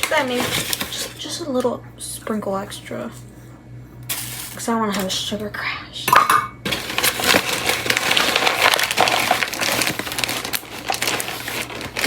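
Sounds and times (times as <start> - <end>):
sugar bag crinkling: 0.0 - 1.4, 4.1 - 5.3, 6.7 - 12.0.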